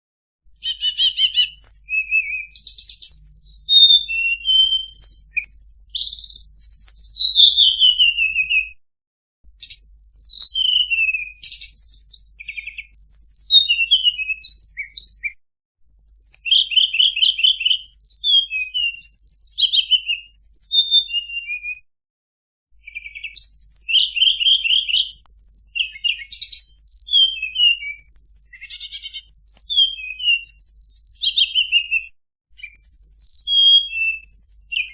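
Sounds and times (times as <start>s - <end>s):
songbird singing: 0.6s - 8.7s, 9.6s - 21.8s, 22.8s - 34.9s.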